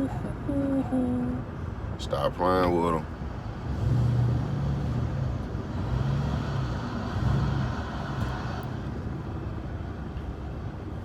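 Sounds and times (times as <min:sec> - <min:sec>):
truck engine droning: 0:03.1 - 0:09.5.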